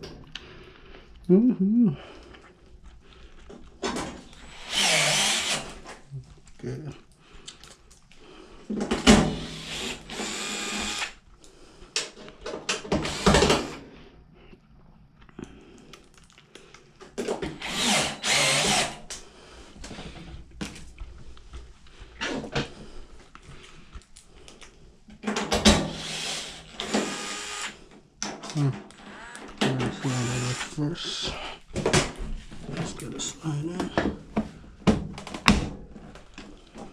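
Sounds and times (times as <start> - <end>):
power drill driving screws: 4.4 - 6.0, 9.0 - 11.2, 12.7 - 13.8, 17.4 - 19.2, 25.6 - 27.8, 28.9 - 30.9.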